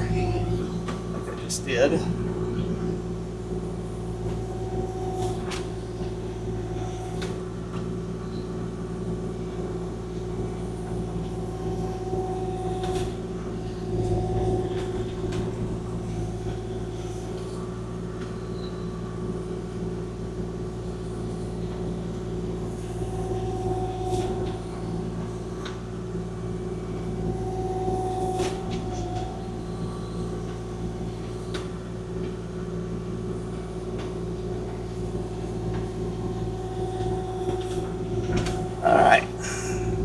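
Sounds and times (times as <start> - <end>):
excavator diesel engine running: 0.0 - 7.6, 36.1 - 40.0.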